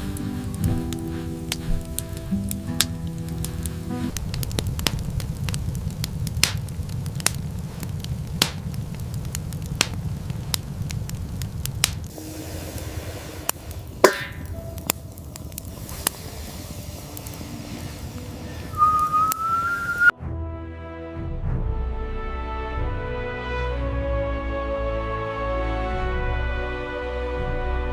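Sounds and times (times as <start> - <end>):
fire crackling and popping: 0.0 - 20.1
low rumble: 0.0 - 20.6
short high whistle: 18.6 - 20.1.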